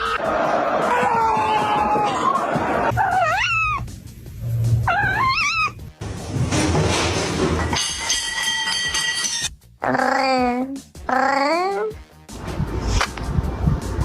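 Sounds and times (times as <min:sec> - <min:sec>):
music: 0:00.0 - 0:14.0
cat meowing: 0:03.0 - 0:03.9, 0:04.9 - 0:05.8.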